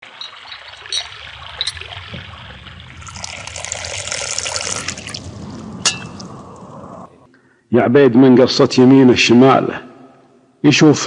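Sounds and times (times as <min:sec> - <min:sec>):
sharp drip-like clicks: 0:00.0 - 0:03.6
running water trickling: 0:00.0 - 0:07.3.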